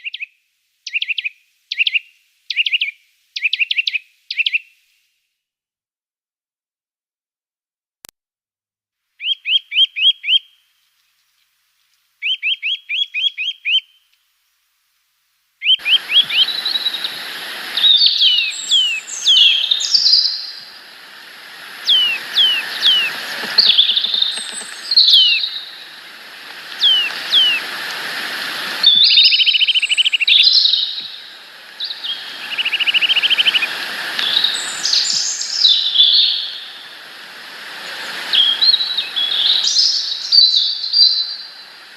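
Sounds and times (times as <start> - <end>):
steady hiss: 14.2 - 41.9
small birds chirping and trilling: 15.6 - 28.0, 28.8 - 36.9, 37.8 - 41.7.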